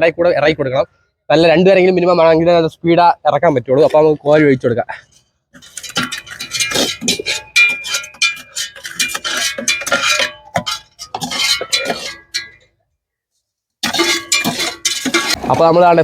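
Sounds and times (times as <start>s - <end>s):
scoop clinking against metal cylinder: 5.6s - 12.6s, 13.8s - 15.4s.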